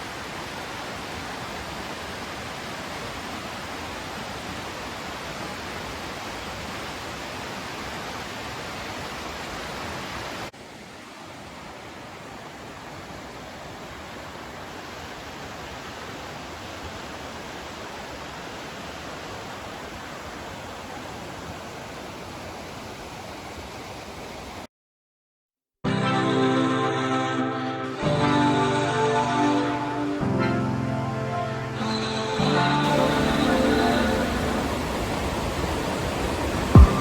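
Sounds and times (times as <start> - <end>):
waterfall rushing: 28.1 - 37.0.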